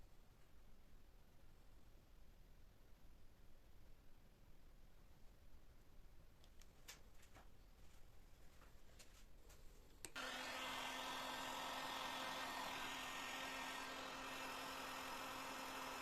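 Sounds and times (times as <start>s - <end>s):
electric power tool running: 10.2s - 16.0s.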